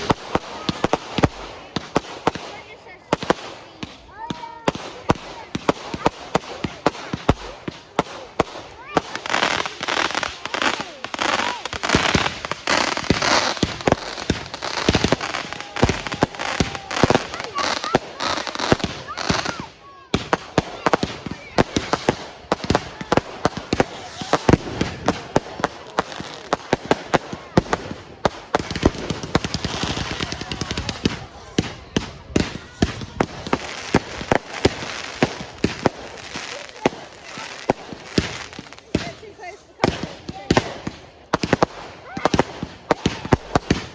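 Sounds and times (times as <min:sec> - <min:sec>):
fireworks bangs: 0:00.0 - 0:43.9
fireworks hissing: 0:09.0 - 0:27.0, 0:32.4 - 0:39.2.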